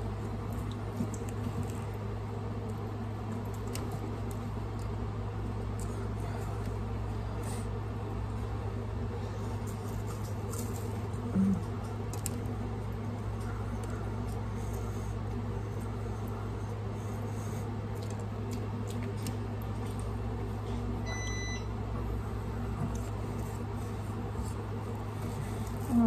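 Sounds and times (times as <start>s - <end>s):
steady low hum: 0.0s - 26.0s
person chewing food: 9.3s - 20.8s.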